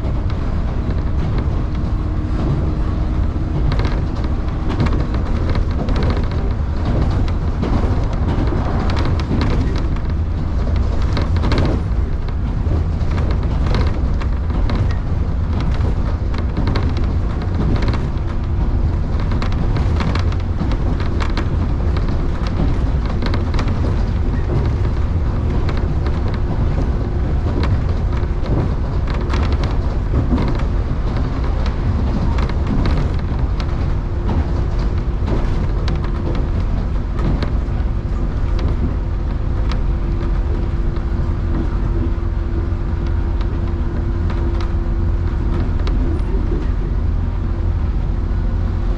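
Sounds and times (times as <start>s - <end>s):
train rumble inside carriage: 0.0s - 48.9s
wheels clacking over rails: 0.0s - 48.9s.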